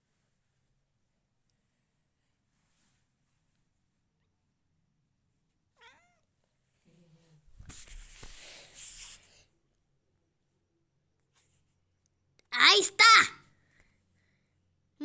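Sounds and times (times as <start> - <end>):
cat meowing: 5.8 - 6.2.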